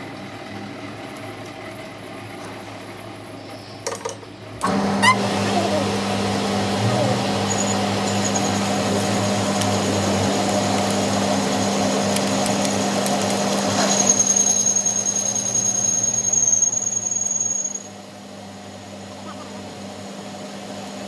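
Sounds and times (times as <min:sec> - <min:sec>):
high-pitched squeal: 0:04.6 - 0:18.0
machine tool humming: 0:04.6 - 0:18.0.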